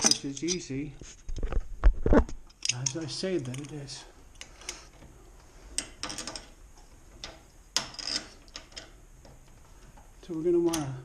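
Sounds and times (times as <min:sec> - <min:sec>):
wrench clicking and scraping: 0:00.0 - 0:00.7, 0:02.5 - 0:04.9, 0:07.2 - 0:09.0.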